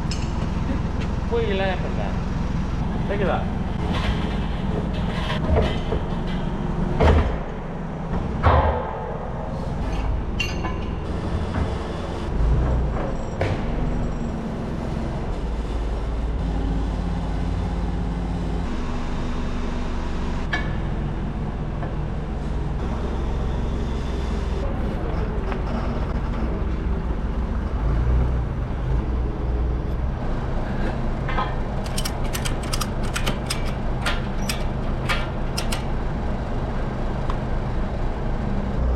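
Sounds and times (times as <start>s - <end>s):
forklift engine running: 0.0s - 38.9s
metal rims knocking and clanking: 31.2s - 36.2s
rapid clicks: 31.8s - 36.1s.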